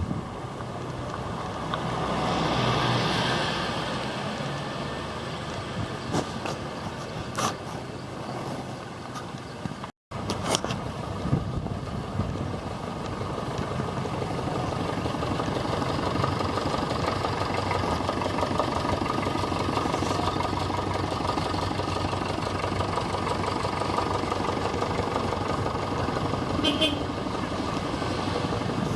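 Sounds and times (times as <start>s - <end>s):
tractor engine running: 0.0s - 28.9s.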